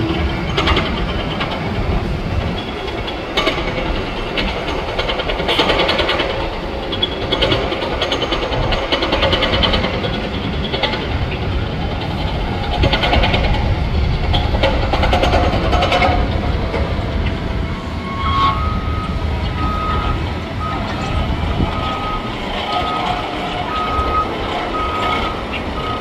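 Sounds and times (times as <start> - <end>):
vehicle engine rumble: 0.0 - 26.0
fast rattling clatter: 0.1 - 17.1.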